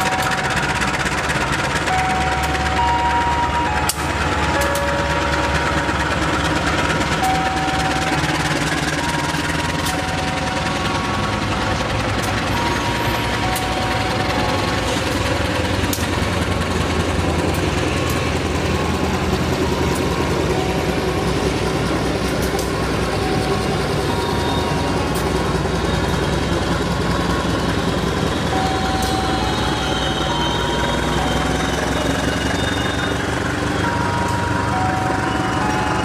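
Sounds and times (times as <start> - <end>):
diesel engine rumble: 0.0 - 36.0
train coaches rolling: 0.0 - 36.0
wheel squeals: 19.7 - 36.0.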